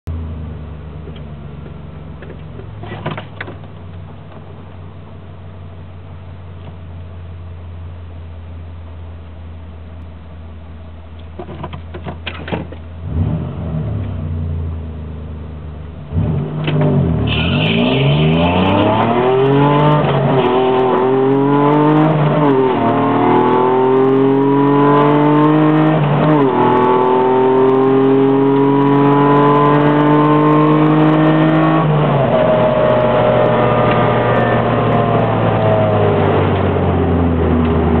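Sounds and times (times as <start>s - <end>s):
car engine revving and accelerating: 13.0s - 14.9s, 16.0s - 38.0s.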